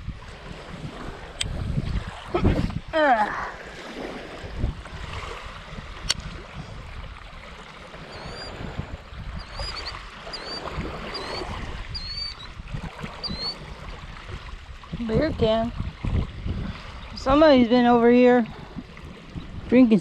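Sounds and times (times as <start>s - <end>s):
wind buffeting microphone: 0.0s - 20.0s
bird chirping high: 8.1s - 8.6s, 9.4s - 12.5s, 13.2s - 13.6s.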